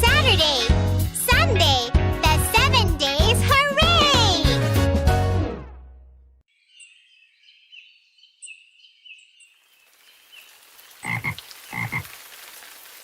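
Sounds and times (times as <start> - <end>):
rain-like hiss: 9.6 - 13.0
frog croaking: 11.0 - 12.2.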